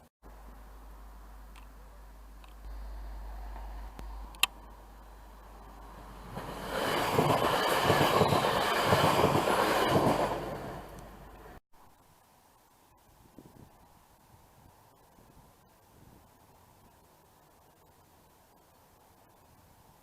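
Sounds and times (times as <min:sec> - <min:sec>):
train passing: 0:04.2 - 0:11.6.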